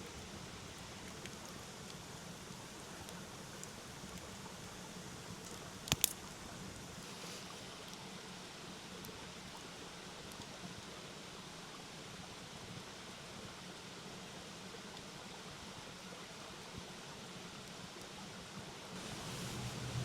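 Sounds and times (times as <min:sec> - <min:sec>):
campfire popping: 0:00.0 - 0:08.0, 0:19.0 - 0:20.0
mountain stream rushing: 0:18.9 - 0:20.0.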